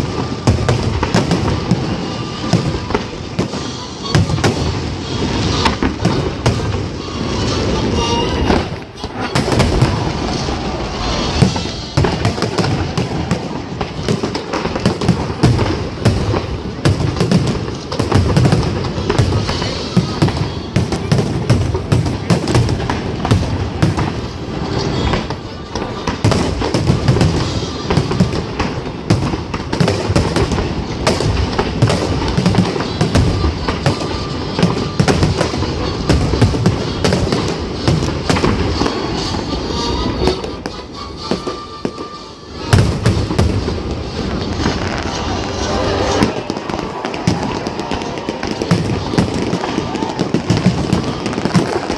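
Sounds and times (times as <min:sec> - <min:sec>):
fireworks booms and crackling: 0:00.0 - 0:51.9
music playing: 0:24.5 - 0:51.5.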